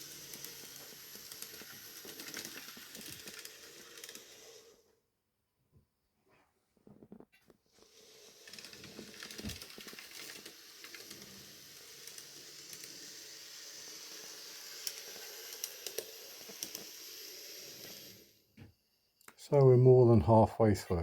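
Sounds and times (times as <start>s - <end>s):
model train motor hiss: 0.0s - 4.9s, 7.7s - 19.2s.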